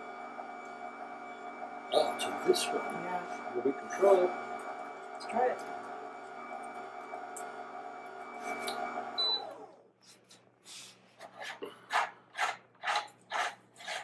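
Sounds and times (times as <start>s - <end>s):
juicer motor whining: 0.0s - 9.9s
rhythmic scraping strokes: 11.2s - 14.0s.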